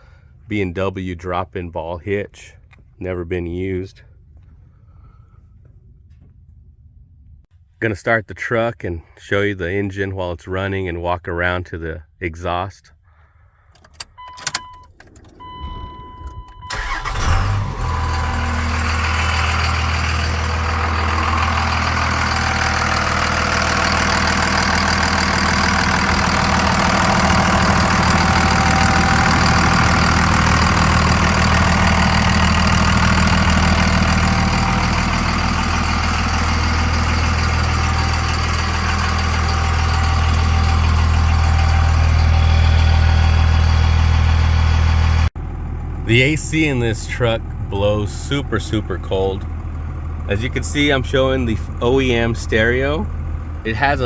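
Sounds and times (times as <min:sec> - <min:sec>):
diesel engine cranking and idling: 0:13.3 - 0:54.0.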